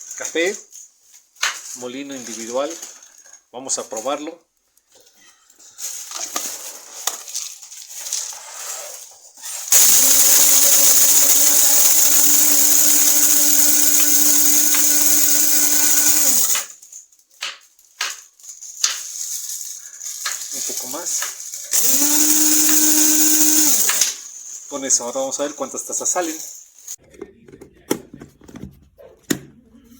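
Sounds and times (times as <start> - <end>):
coffee grinder motor whirring: 9.7 - 16.7, 21.7 - 24.2.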